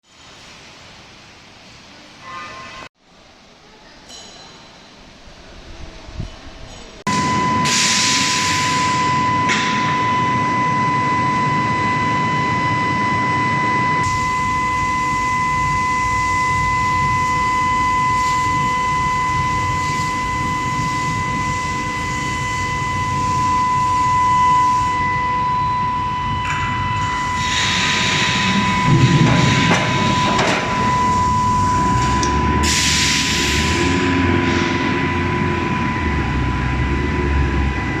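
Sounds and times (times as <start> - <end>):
high-pitched machinery whine: 7.1 - 38.0
low machinery rumble: 13.2 - 38.0.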